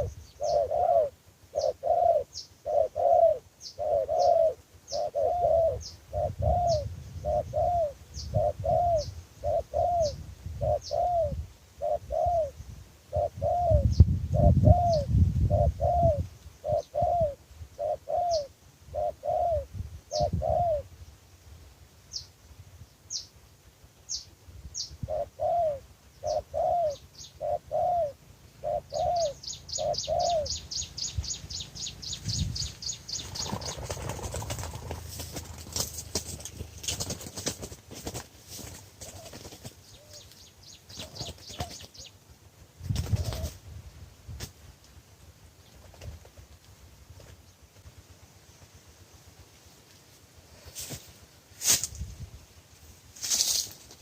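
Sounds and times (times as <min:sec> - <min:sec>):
dove cooing: 0:00.0 - 0:20.9, 0:25.0 - 0:30.9, 0:32.3 - 0:37.7, 0:39.0 - 0:40.3, 0:40.9 - 0:42.1, 0:43.0 - 0:43.6
high bird chirps: 0:28.8 - 0:33.8.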